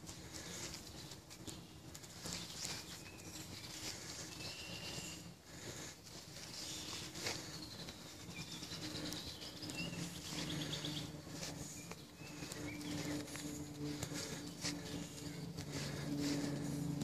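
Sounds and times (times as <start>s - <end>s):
birds chirping and trilling: 0.0s - 17.0s
low steady hum: 0.0s - 17.0s.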